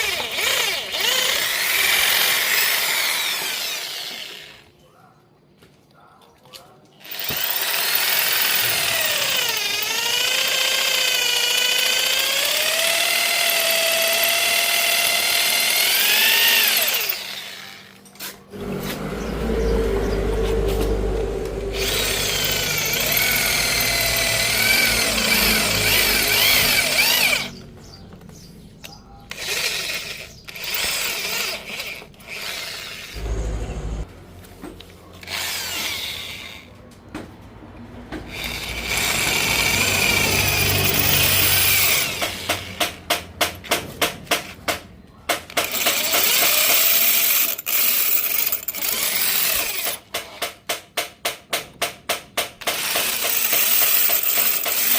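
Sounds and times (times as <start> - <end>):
electric drill whining under load: 0.0 - 4.7, 7.0 - 18.0, 20.6 - 27.6, 29.3 - 33.4, 35.2 - 36.7, 38.3 - 42.8, 45.7 - 50.0, 52.7 - 54.9.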